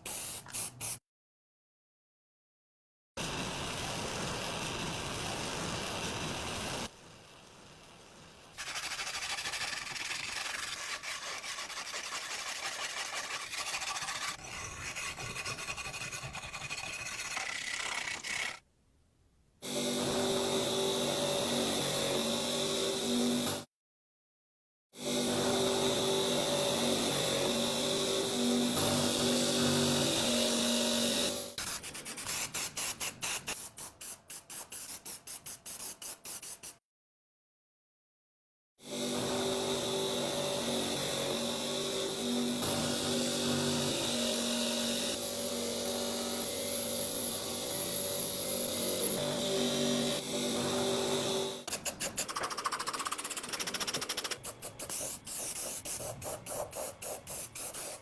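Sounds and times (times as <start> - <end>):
small machine whirring: 8.6 - 18.6, 38.9 - 58.0.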